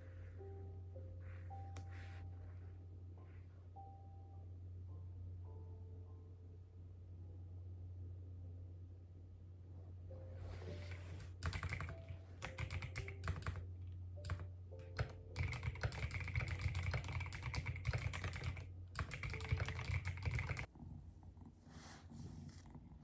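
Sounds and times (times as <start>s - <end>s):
typing on computer keyboard: 10.8s - 13.6s, 14.2s - 20.7s.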